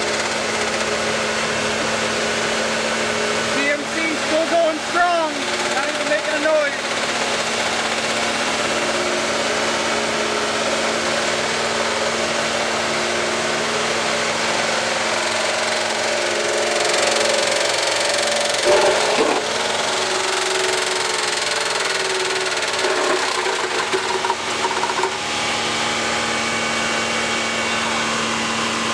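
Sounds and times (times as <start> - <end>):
engine running steadily: 0.0 - 28.9.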